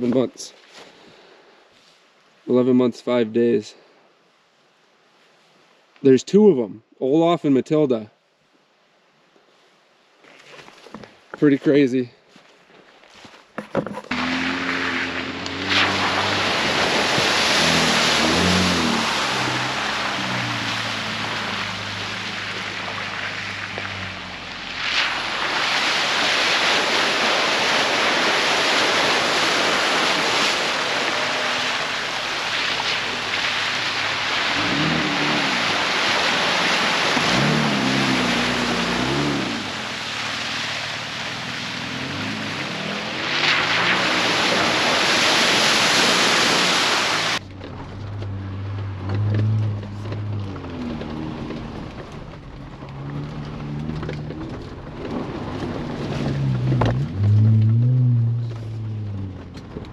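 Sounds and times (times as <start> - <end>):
car engine accelerating: 14.1 - 59.9
tyre and wind noise: 47.3 - 59.9.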